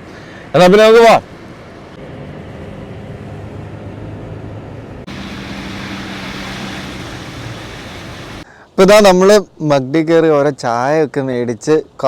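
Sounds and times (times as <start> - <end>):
road and tyre noise: 0.0 - 8.5
car engine hum: 1.4 - 8.4.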